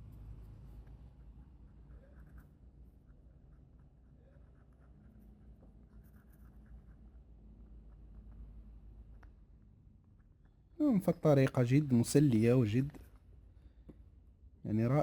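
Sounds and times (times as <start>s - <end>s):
soft scratches and clicks: 0.0s - 10.8s
faint low room hum: 0.0s - 15.0s.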